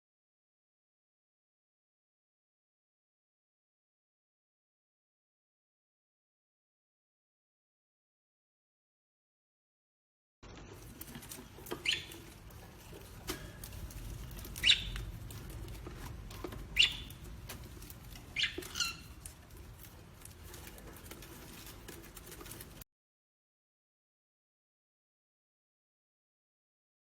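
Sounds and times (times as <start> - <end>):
parrot chirping: 11.6 - 12.8, 14.2 - 15.1, 16.6 - 19.4.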